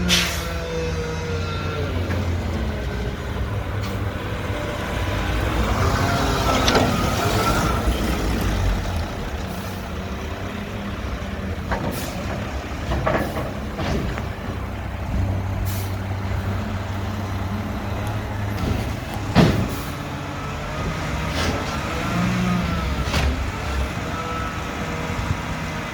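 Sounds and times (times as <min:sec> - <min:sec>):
diesel engine running: 0:00.0 - 0:25.9
air brake hisses: 0:00.1 - 0:00.6, 0:15.6 - 0:16.0.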